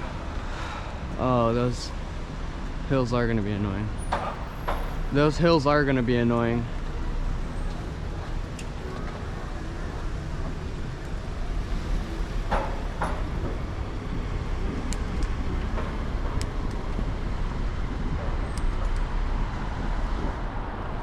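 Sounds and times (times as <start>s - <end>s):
wind rumbling on microphone: 6.7s - 21.0s.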